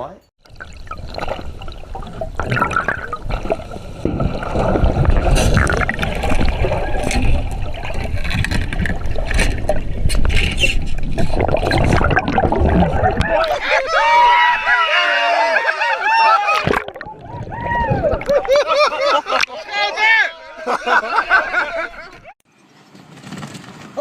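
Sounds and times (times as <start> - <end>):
water sloshing and rushing: 0.4 - 13.9, 16.5 - 19.5.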